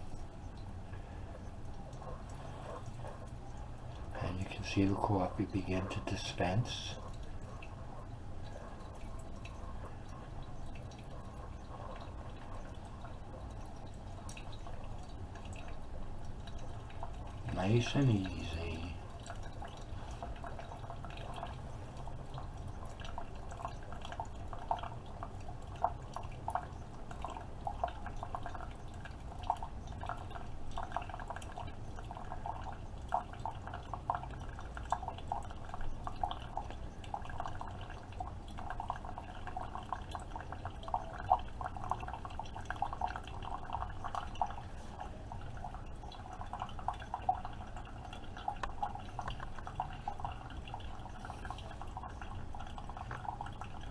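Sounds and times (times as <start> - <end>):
coffee dripping into cup: 0.0 - 53.9
coffee maker humming: 16.4 - 25.2, 26.1 - 53.9.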